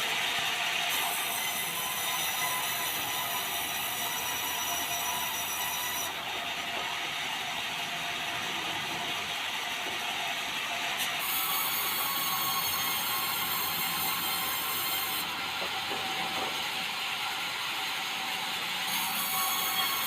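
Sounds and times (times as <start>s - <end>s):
sawmill saw cutting timber: 0.0s - 20.0s.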